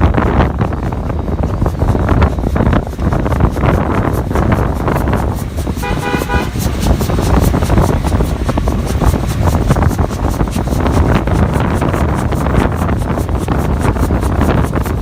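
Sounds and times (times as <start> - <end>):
steady low rumble: 0.0 - 15.0
wind on microphone: 0.0 - 15.0
short horn toot: 5.8 - 6.7.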